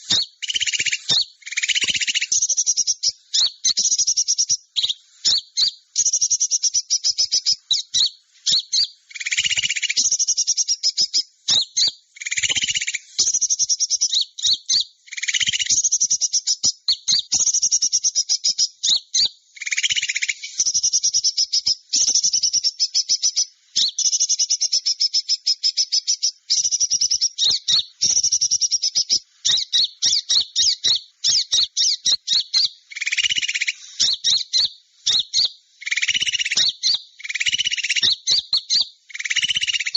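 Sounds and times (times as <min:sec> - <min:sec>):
lower buzzy bird call: 0:00.0 - 0:16.5, 0:17.1 - 0:39.9
songbirds chipping and trilling: 0:00.0 - 0:39.9.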